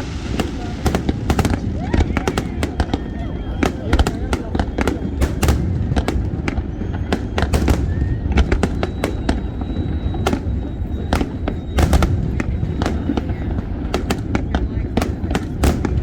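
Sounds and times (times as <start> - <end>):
fireworks cracks and bangs: 0.0 - 16.0
low rumble of fireworks: 0.0 - 16.0.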